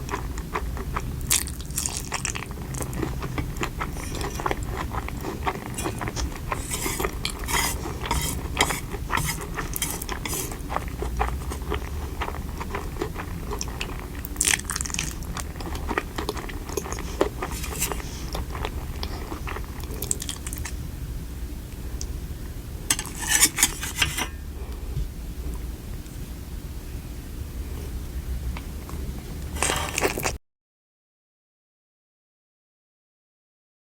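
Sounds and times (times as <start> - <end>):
chewing and crunching: 0.0 - 20.8, 28.5 - 30.4
cutlery clinking on dishes: 5.8 - 10.6, 22.9 - 24.4.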